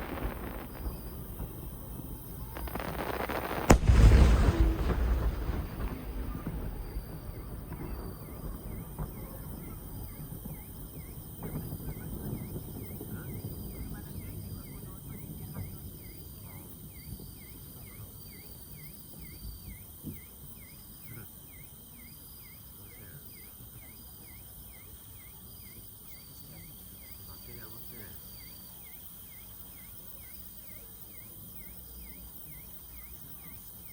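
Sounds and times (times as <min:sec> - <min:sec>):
fireworks explosions rumble: 0:00.0 - 0:17.7
insect chirping: 0:00.0 - 0:33.9.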